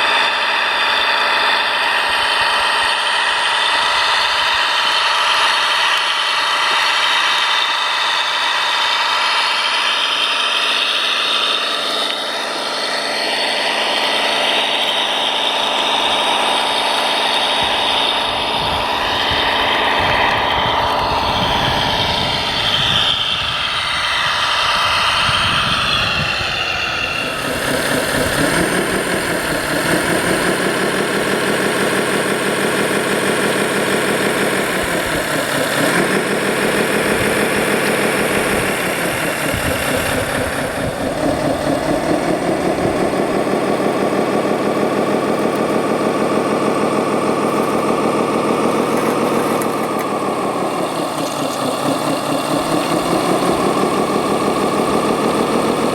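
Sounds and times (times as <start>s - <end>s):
mechanical whirr: 0.0s - 55.9s
model engine revving: 0.0s - 55.9s.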